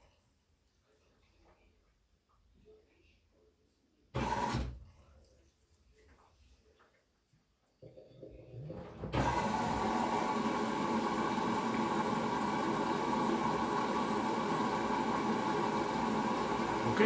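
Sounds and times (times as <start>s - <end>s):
washing machine water intake hiss: 9.2s - 17.0s.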